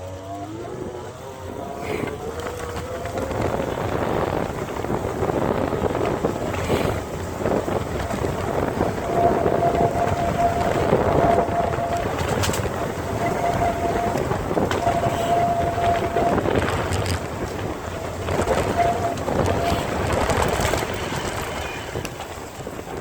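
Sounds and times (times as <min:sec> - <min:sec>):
thin steady whine: 0:00.0 - 0:22.8
bicycle rolling noise: 0:00.0 - 0:23.0
wind buffeting microphone: 0:00.0 - 0:23.0.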